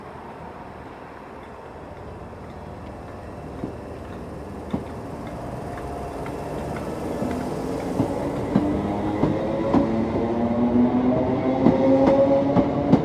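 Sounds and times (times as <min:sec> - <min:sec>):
electric train rumbling: 0:00.0 - 0:13.0
wheels clacking over rail joints: 0:00.9 - 0:10.2.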